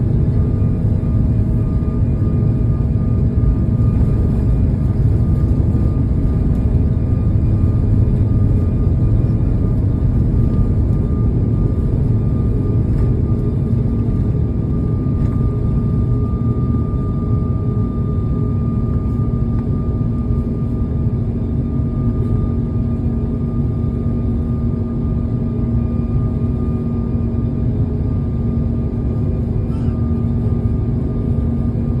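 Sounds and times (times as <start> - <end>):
jet engines roaring: 0.0 - 32.0.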